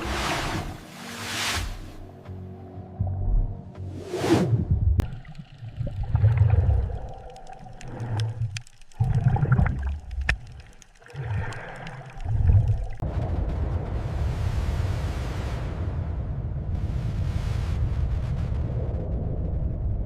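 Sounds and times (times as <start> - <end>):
underwater rumbling surges: 4.5 - 20.0
faint clicks: 5.0 - 13.0
water gurgling: 5.0 - 13.0.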